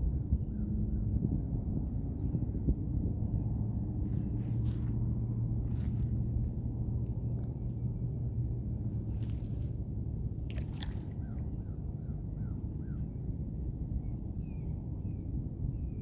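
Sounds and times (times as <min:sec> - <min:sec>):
steady low rumble: 0:02.4 - 0:12.0.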